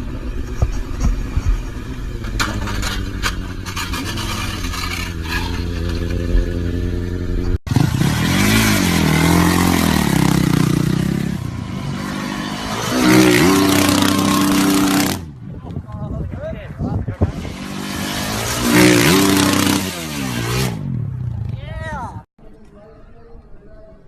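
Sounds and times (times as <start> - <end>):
motorcycle engine running: 0.0 - 15.3
motorcycle engine revving: 0.0 - 15.4, 17.2 - 21.8.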